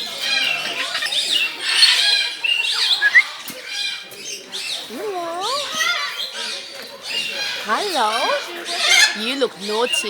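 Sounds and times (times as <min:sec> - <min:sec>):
birds squawking and chirping: 0:00.0 - 0:10.0
wavering whistled bird call: 0:02.6 - 0:03.4.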